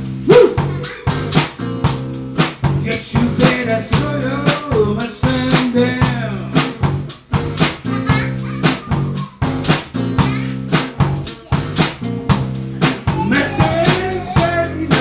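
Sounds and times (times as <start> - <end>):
drum kit beat: 0.0 - 15.0
live band music: 0.0 - 15.0.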